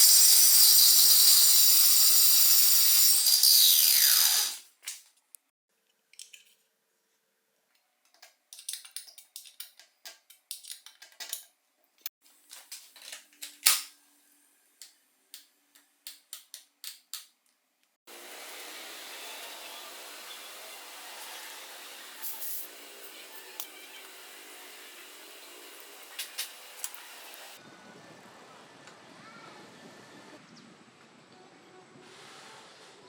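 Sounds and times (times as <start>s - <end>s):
steady hiss: 18.2s - 27.6s.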